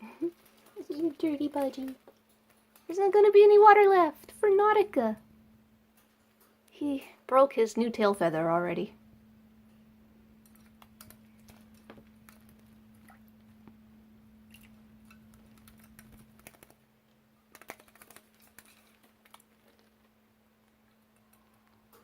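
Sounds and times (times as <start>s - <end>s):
steady low hum: 0.0s - 17.5s.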